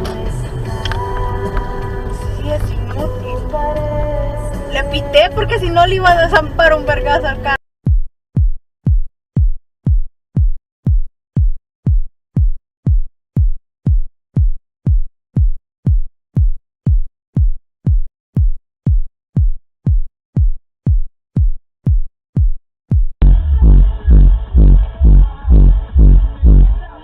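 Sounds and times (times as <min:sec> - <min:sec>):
electronic kick drum beat: 0:07.8 - 0:27.0.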